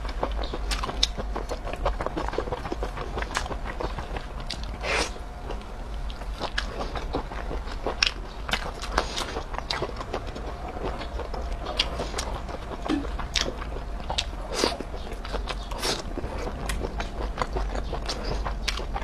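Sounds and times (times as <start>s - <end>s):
person biting and chewing food: 0.0s - 19.0s.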